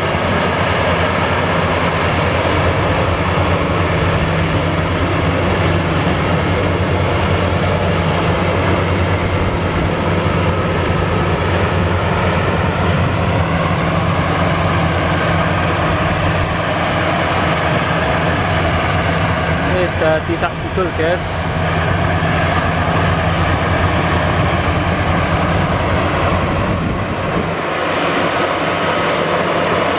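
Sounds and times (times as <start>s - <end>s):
combine harvester droning: 0.0s - 29.9s.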